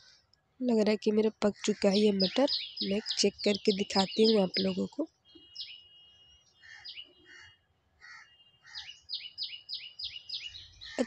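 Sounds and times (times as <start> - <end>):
small bird chirping: 1.5 - 5.9, 8.7 - 11.0.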